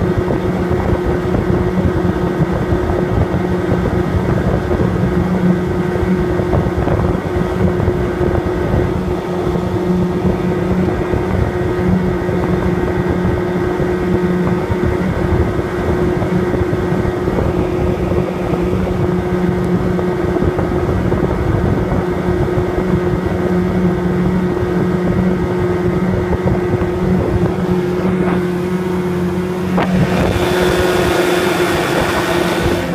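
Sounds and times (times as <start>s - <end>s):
outboard motor running at high speed: 0.0s - 32.9s
wind on microphone: 0.0s - 32.9s.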